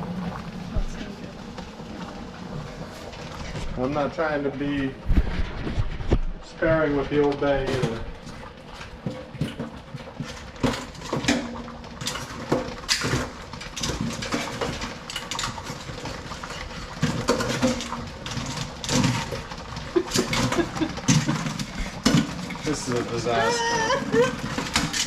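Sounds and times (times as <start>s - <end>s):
crab shells and metal pot clattering: 7.1s - 25.0s.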